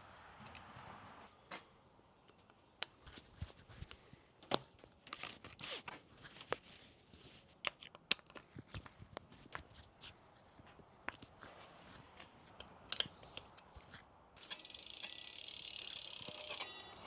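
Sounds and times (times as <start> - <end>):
tools clicking on bicycle parts: 5.0 - 5.9, 12.6 - 17.0.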